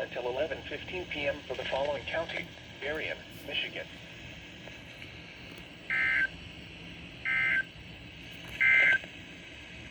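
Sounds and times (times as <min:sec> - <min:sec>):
radio hiss: 0:00.0 - 0:09.9
buzzy two-tone data bursts: 0:05.9 - 0:06.4, 0:07.2 - 0:07.7.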